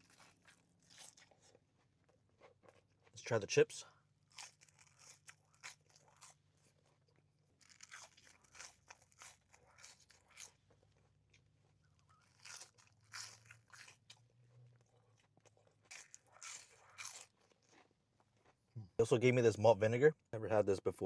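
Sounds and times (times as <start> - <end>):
chewing crunchy chips: 0.0 - 18.8.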